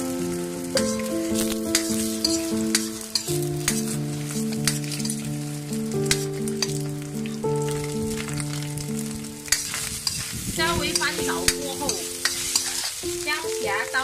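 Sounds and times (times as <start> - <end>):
food sizzling in hot oil: 0.0 - 14.0
slow background music: 0.0 - 14.0
spatula scraping metal wok: 0.7 - 6.9, 9.4 - 13.2.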